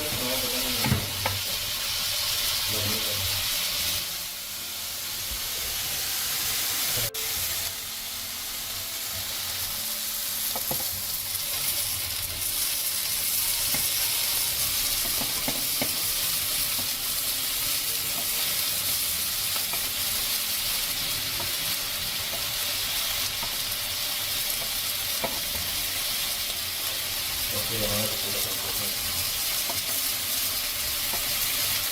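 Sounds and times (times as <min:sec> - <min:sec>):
food sizzling: 0:00.0 - 0:31.9.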